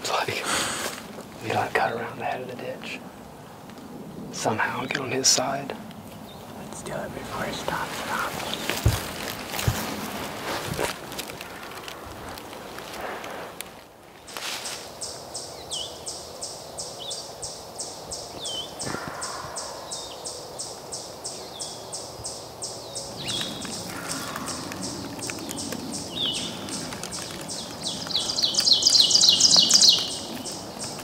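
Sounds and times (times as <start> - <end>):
songbirds singing: 0.0 - 12.4, 14.3 - 31.0
down-slurred bird calls: 14.6 - 31.0.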